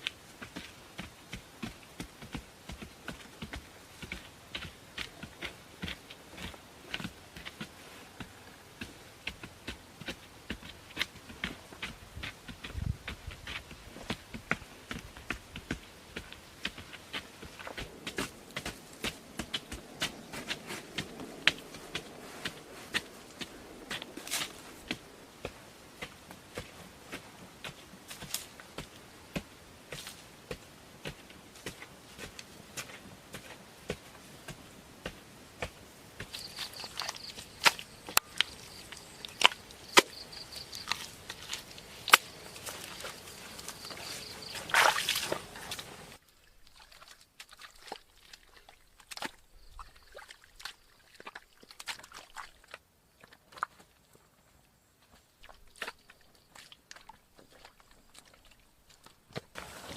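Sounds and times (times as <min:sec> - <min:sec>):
hands working building materials: 0:00.0 - 0:46.2.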